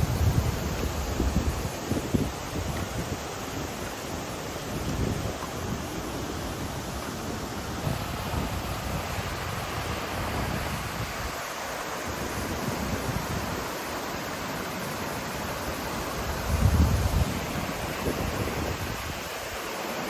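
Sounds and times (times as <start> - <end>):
wind buffeting microphone: 0.0 - 11.5, 15.7 - 19.4
river rushing over rapids: 0.0 - 20.0.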